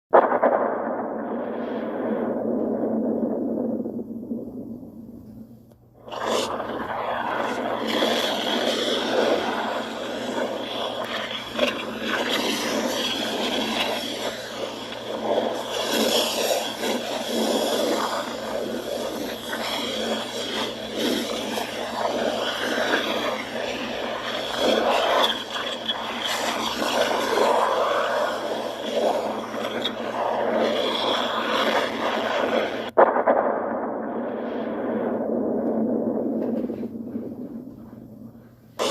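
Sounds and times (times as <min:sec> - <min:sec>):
volcano venting with loud rushing: 0:06.0 - 0:37.7.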